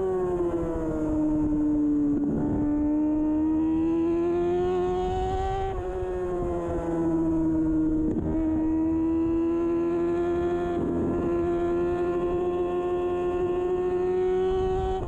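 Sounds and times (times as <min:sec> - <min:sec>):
motorcycle engine running hard: 0:00.0 - 0:15.0.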